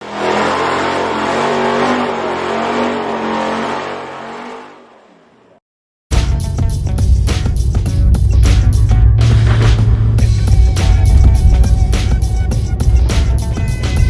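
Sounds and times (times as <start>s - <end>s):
car engine accelerating: 0.0s - 5.6s, 6.9s - 14.0s
music: 6.1s - 14.0s.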